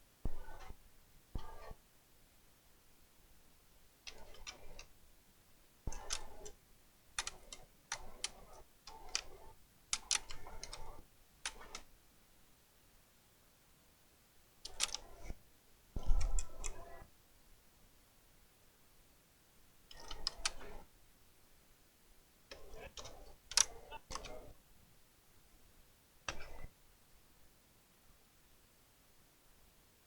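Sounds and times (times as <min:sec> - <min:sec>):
laptop keyboard clicks: 0:07.2 - 0:11.9, 0:14.6 - 0:15.2, 0:22.5 - 0:24.5.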